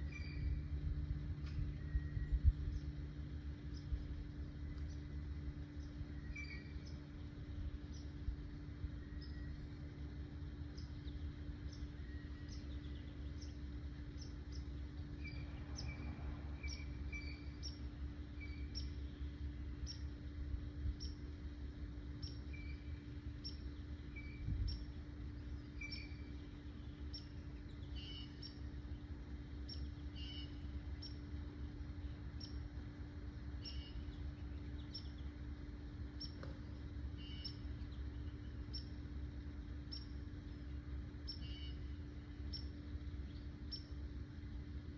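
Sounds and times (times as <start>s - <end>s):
small birds chirping: 0.0s - 44.9s
steady low hum: 0.0s - 44.9s.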